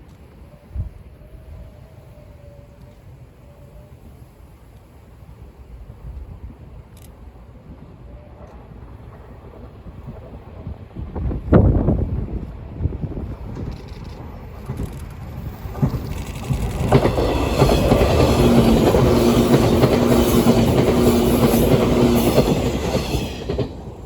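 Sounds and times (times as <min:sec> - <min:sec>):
train hum: 0:00.0 - 0:24.0
wheels clicking over rail joints: 0:13.3 - 0:24.0.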